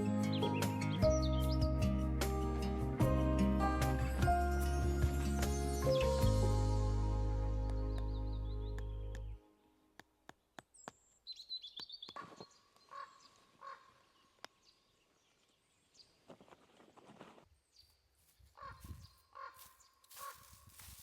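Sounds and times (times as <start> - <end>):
birds calling: 10.8 - 14.8, 18.6 - 20.6.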